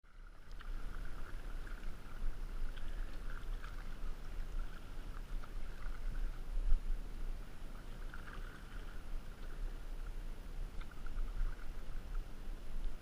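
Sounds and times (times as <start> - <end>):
river water rumbling: 0.0 - 13.0
small splashes and drips: 0.1 - 6.3.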